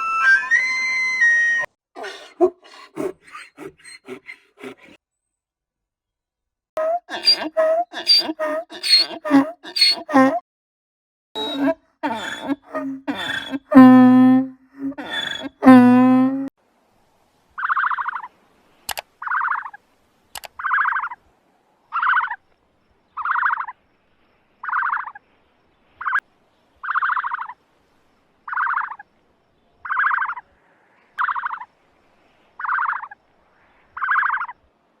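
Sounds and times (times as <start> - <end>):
animal rattling call: 2.0 - 5.0, 6.8 - 10.4, 11.4 - 16.5.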